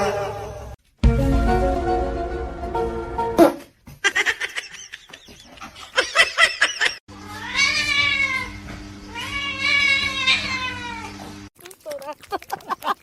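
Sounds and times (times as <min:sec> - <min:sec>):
cat meowing: 0:07.2 - 0:11.2.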